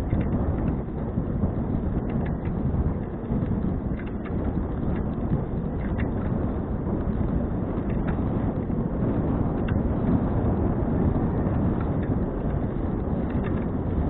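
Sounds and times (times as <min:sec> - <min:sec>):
bicycle clicks: 0:00.0 - 0:14.0
wind buffeting microphone: 0:00.0 - 0:14.0.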